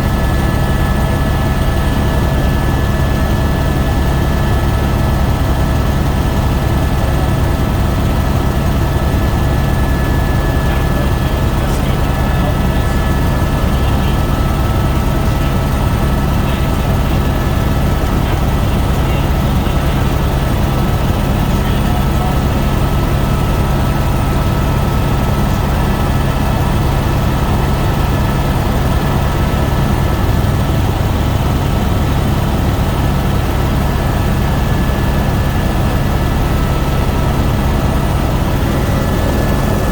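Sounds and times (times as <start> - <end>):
helicopter flying: 0.0 - 39.9.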